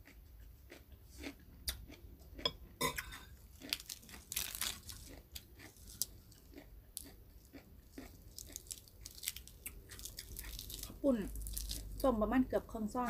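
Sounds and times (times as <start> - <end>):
crunchy food chewing: 0.0 - 12.1.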